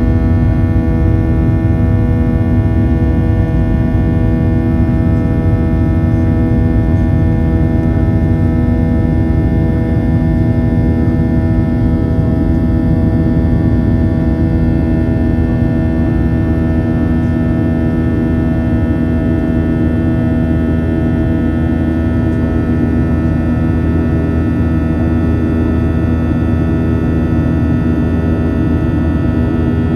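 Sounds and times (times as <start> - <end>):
jet engines droning in cabin: 0.0 - 29.9.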